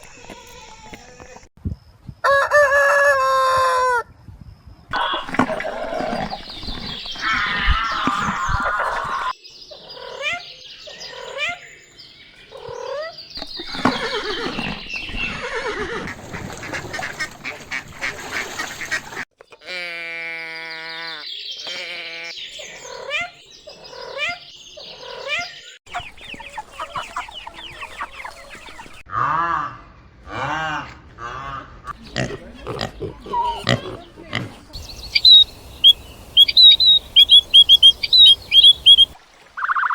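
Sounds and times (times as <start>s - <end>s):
farm animal calls: 0.0s - 1.5s, 4.9s - 9.4s, 12.5s - 18.2s, 19.6s - 39.9s
clucking: 5.0s - 8.2s, 25.9s - 29.0s, 31.9s - 39.9s.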